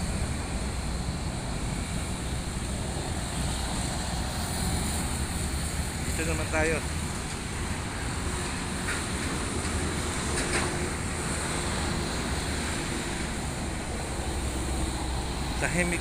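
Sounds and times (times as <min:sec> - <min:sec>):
light road traffic: 0:00.0 - 0:16.0.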